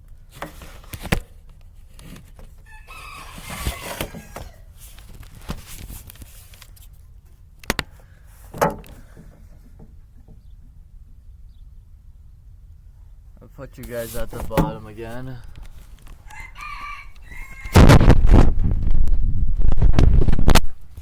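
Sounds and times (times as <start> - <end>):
rooster crowing: 2.6 - 4.7, 16.2 - 18.1
sharp knocks: 8.5 - 10.5, 14.4 - 14.9.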